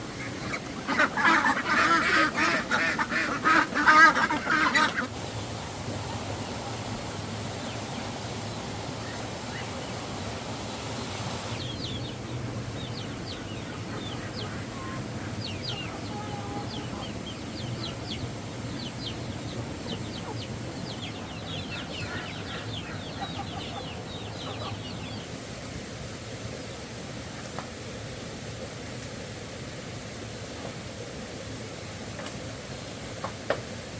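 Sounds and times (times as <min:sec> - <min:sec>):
chickens calling: 0:00.0 - 0:25.5
steady rushing background noise: 0:00.0 - 0:33.9.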